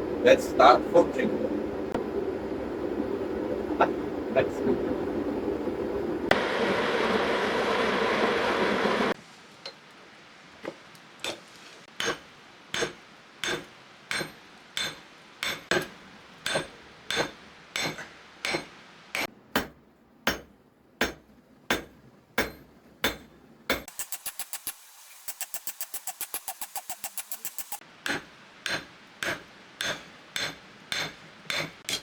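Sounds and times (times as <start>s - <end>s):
hammer striking steel on anvil: 12.0s - 32.0s.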